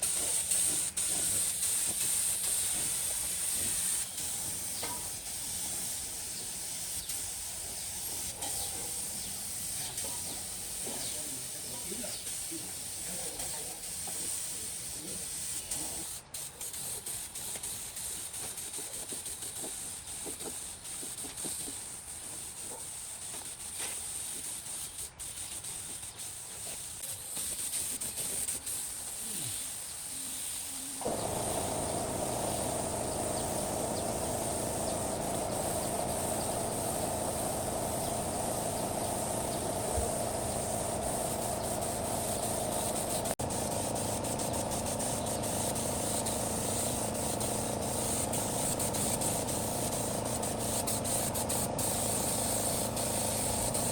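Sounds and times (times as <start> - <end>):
compressed air hissing from spray gun: 0.0 - 53.9
steady machine noise: 31.0 - 53.9.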